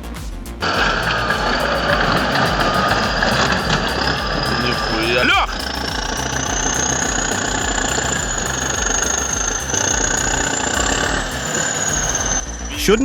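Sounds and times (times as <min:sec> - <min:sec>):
thin high whine: 0:00.0 - 0:13.0.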